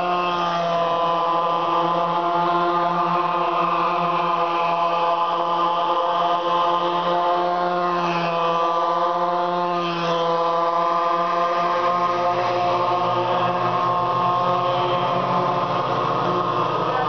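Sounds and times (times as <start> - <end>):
engine passing by: 0.0 - 17.0
small engines droning: 0.0 - 17.0.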